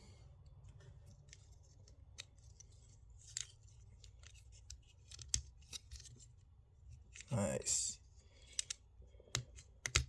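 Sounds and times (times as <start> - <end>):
plastic toy parts clicking: 3.2 - 6.1, 8.5 - 10.0.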